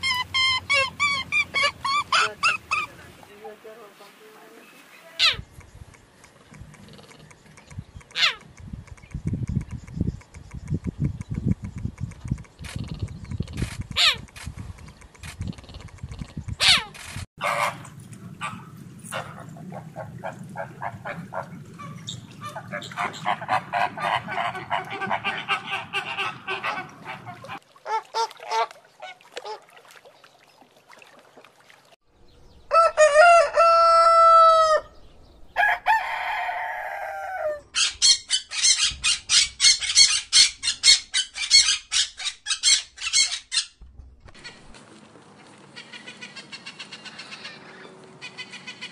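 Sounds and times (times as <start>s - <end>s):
harsh chattering calls: 0.0s - 3.0s, 5.1s - 17.3s, 37.8s - 43.8s
cheetah calls: 0.0s - 3.1s, 5.1s - 5.5s, 6.7s - 8.5s, 12.6s - 14.3s, 15.2s - 17.8s, 18.4s - 29.6s
flamingos honking: 0.0s - 5.5s, 16.6s - 29.6s.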